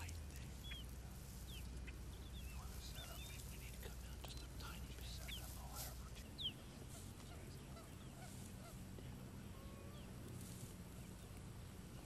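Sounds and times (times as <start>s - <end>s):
birds calling: 0.0s - 12.0s
steady low hum: 0.0s - 12.0s.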